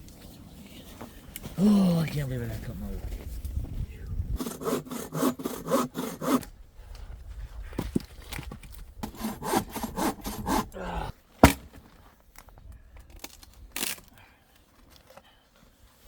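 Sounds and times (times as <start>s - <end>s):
hand saw cutting wood: 4.4s - 6.5s, 9.0s - 10.8s
sharp knock: 11.4s - 11.7s.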